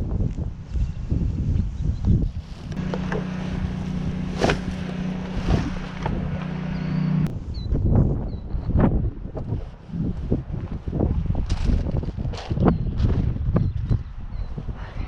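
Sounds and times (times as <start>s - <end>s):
wind buffeting microphone: 0.0s - 15.0s
steady low hum: 2.5s - 7.5s.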